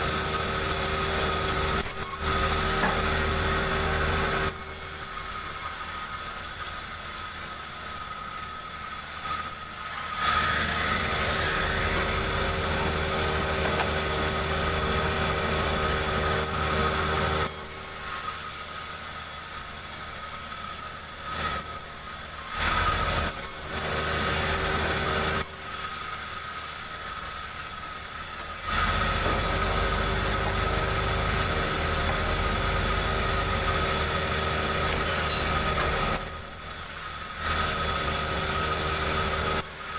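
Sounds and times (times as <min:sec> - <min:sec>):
chainsaw cutting log: 0:00.0 - 0:05.1, 0:09.4 - 0:18.6, 0:22.4 - 0:25.5, 0:28.3 - 0:39.9.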